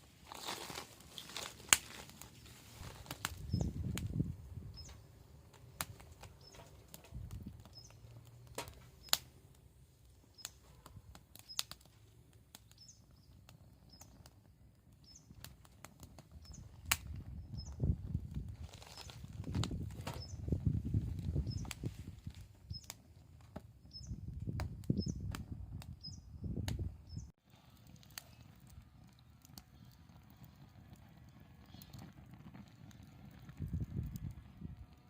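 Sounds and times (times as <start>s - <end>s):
wood fire crackling: 0.0s - 35.0s
sharp pops of fire: 0.1s - 35.0s.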